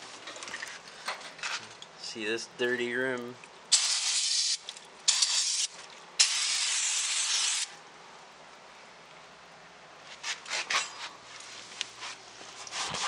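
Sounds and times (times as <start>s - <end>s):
aerosol can spraying: 3.7s - 7.7s.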